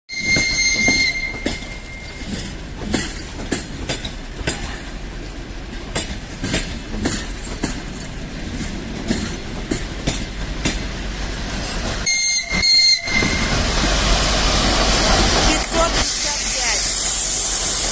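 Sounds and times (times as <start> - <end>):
locomotive whistle: 0.1 - 2.3, 12.0 - 13.6
train wheels clicking on rails: 0.1 - 17.9.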